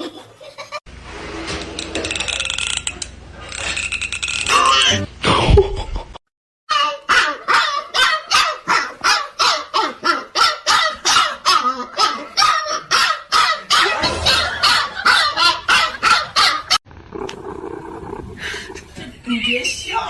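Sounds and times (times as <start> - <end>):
dog barking: 7.1 - 16.8.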